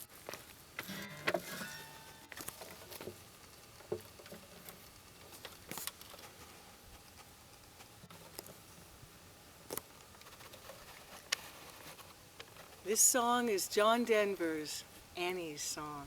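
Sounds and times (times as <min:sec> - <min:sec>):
soft clicks and rustles: 0:00.0 - 0:13.0.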